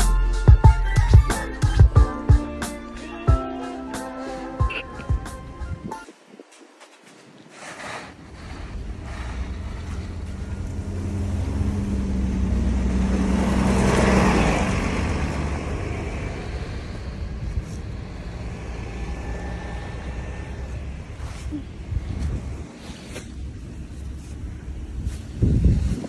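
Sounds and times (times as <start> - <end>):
vehicle passing by: 8.4 - 21.5.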